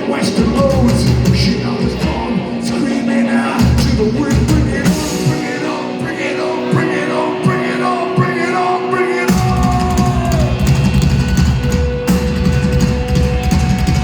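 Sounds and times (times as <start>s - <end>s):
drums: 0.0s - 14.0s
guitar: 0.0s - 14.0s
heavy bass and kick drum: 0.4s - 2.4s, 3.6s - 5.4s, 9.3s - 14.0s.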